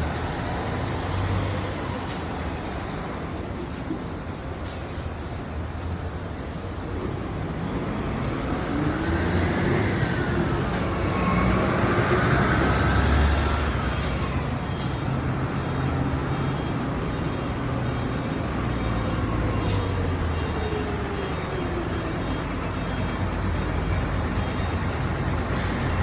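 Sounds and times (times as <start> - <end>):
bus engine running loudly: 0.0 - 26.0.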